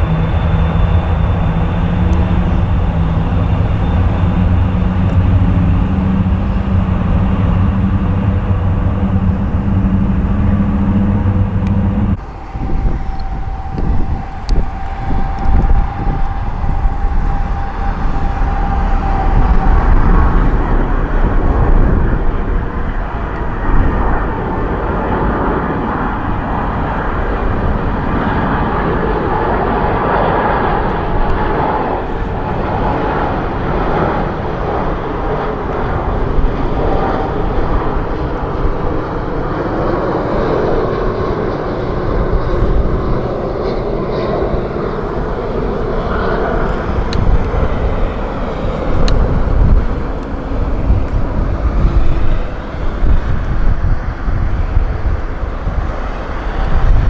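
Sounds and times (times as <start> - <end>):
jet airliner engines passing: 0.0 - 57.0.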